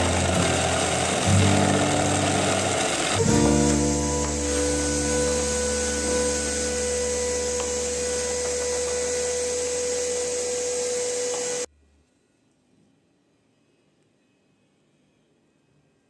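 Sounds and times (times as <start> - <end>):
electric drill whining: 0.0 - 11.7.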